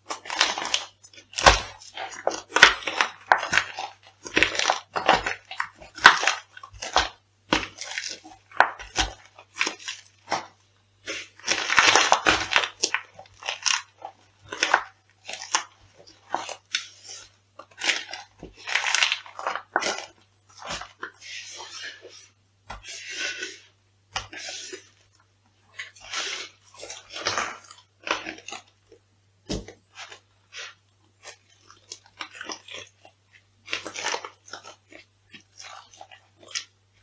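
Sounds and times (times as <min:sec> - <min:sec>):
crisp food crunching underfoot: 0:00.0 - 0:37.0.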